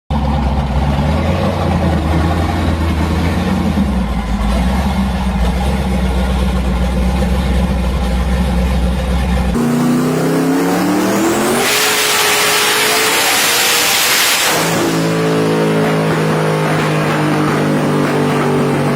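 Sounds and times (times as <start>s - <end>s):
car engine running at low revs: 0.1s - 18.9s
car accelerating hard: 9.6s - 18.9s.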